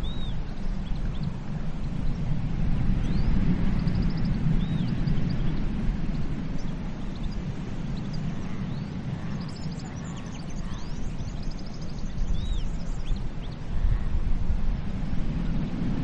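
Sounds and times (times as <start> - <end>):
sea surf rumbling: 0.0 - 11.4, 12.1 - 16.0
birds chirping and calling: 3.0 - 14.0.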